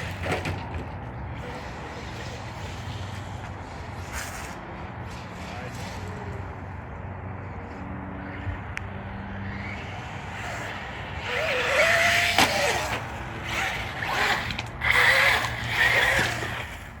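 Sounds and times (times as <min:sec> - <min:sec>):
steady background hum: 0:00.0 - 0:17.0
toy truck motor whine: 0:09.5 - 0:17.0.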